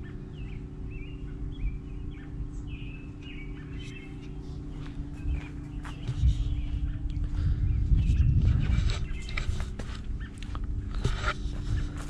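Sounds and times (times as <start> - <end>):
low rumbling background noise: 0.0 - 12.0
small birds chirping: 0.0 - 12.0.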